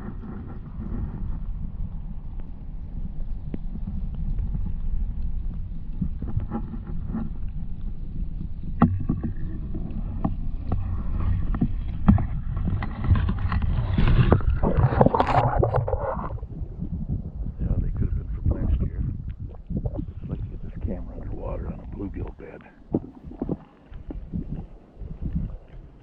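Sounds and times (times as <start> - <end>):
muffled underwater sloshing: 0.0 - 26.0
water splashing: 8.8 - 17.0, 19.3 - 26.0.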